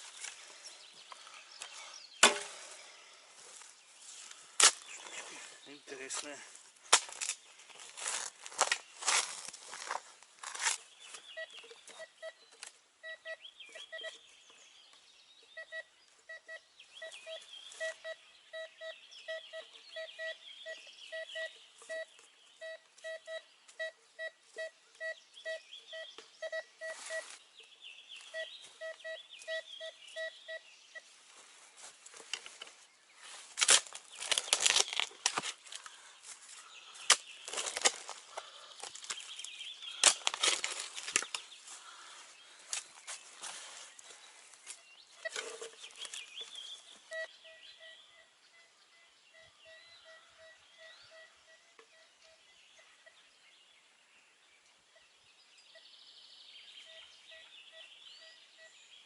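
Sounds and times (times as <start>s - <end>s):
birds chirping faintly: 0.0s - 59.0s
rustling and knocking of digging: 6.8s - 12.8s, 31.3s - 35.9s, 37.0s - 41.6s, 42.8s - 47.1s
metal detector beeping: 11.4s - 14.2s, 15.6s - 27.4s, 28.2s - 31.1s, 45.2s - 45.6s, 47.1s - 52.4s.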